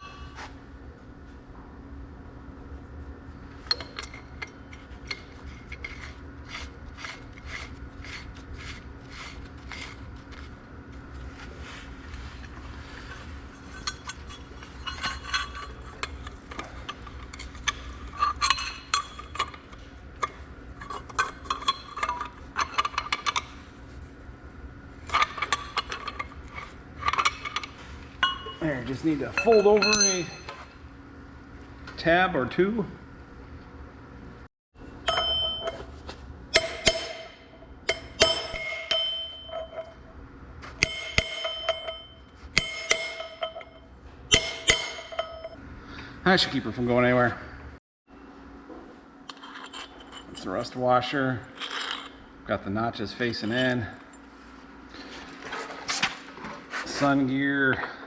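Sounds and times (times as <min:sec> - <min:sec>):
steady low hum: 0:00.0 - 0:58.0
metal tools clinking and tapping: 0:03.6 - 0:06.1, 0:13.6 - 0:23.5, 0:25.1 - 0:30.7, 0:35.1 - 0:45.6, 0:49.3 - 0:50.8.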